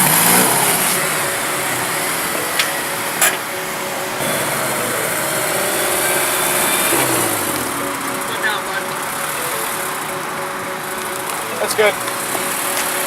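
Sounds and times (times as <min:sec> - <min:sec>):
car engines running: 0:00.0 - 0:13.0.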